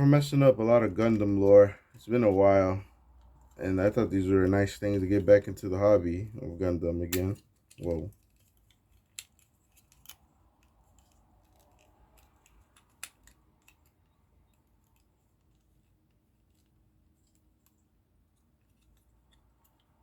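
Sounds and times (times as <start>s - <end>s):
plastic parts clicking: 7.1s - 20.0s.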